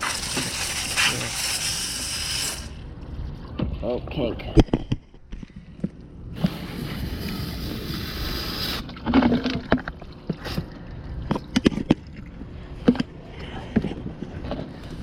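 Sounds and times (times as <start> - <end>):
water spray hissing on metal unit: 0.0 - 2.8, 6.6 - 8.9.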